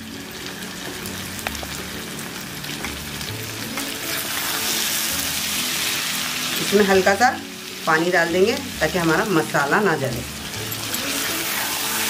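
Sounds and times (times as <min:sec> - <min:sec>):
chicken sizzling in pan: 0:00.0 - 0:12.0.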